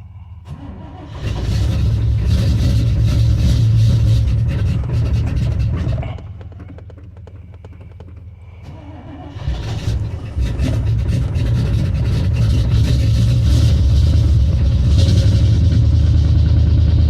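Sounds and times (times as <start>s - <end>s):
pickup truck engine idling: 0.0s - 17.0s
fine regular ticking: 4.2s - 9.0s.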